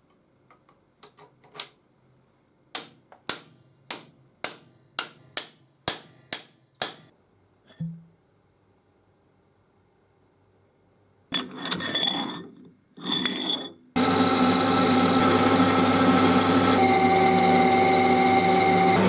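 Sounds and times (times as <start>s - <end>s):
electric power tool running: 14.0s - 19.0s.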